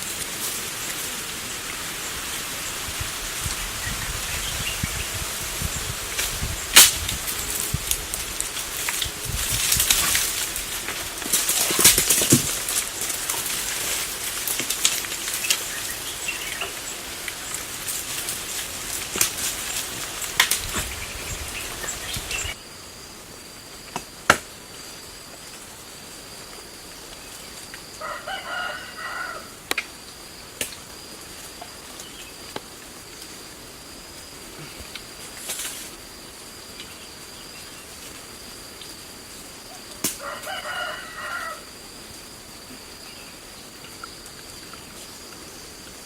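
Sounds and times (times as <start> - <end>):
high insect drone: 0.0 - 46.0
leaves and twigs rustling: 0.0 - 46.0
twigs snapping: 6.2 - 22.5.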